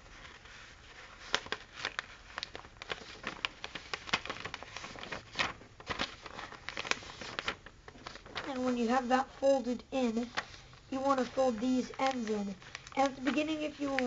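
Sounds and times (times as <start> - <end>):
paper being folded and crinkled: 0.0 - 14.0.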